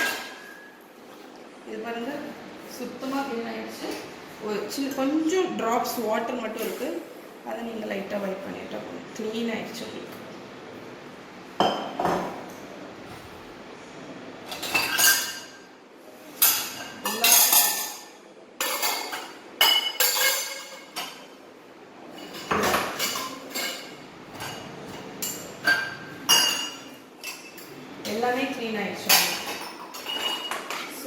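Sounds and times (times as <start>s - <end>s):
dishes and cutlery clattering: 0.0s - 0.7s, 14.4s - 15.7s, 16.4s - 21.3s, 22.1s - 28.2s, 29.0s - 31.0s.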